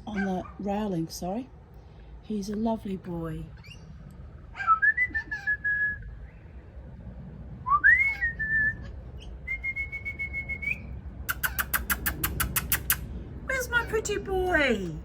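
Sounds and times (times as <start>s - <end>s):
long whistled notes: 7.7s - 8.8s, 9.5s - 10.9s
fast sharp clicks: 11.3s - 13.1s.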